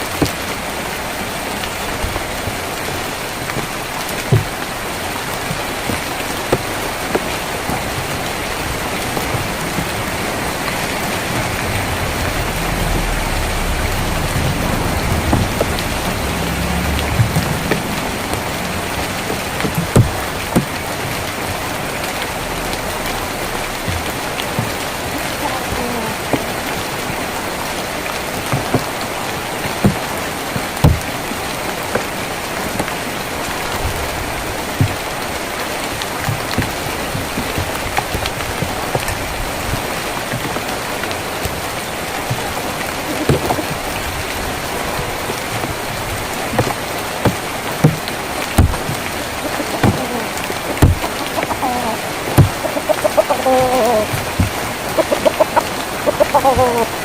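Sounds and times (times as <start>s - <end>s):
rain on a tin roof: 0.0s - 57.0s
low rumble: 8.3s - 29.2s.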